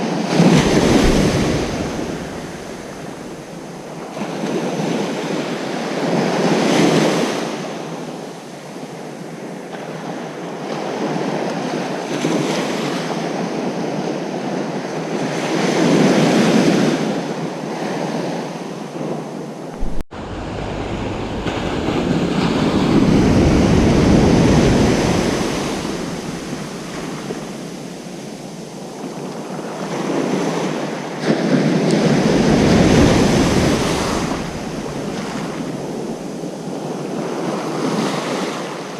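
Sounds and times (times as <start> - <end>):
waves breaking on beach: 0.0 - 38.9
low rumble: 0.6 - 3.9, 19.8 - 28.2, 32.0 - 36.7.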